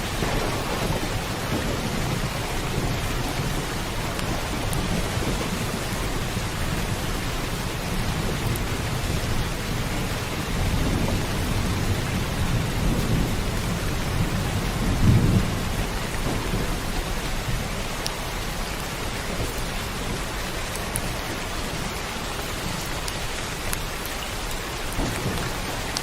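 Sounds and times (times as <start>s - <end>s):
heavy rain: 0.0s - 26.0s
thunder rumbling: 0.0s - 26.0s.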